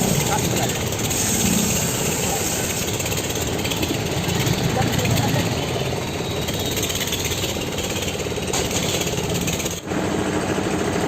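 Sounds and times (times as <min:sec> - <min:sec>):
diesel tractor engine knocking: 0:00.0 - 0:09.9.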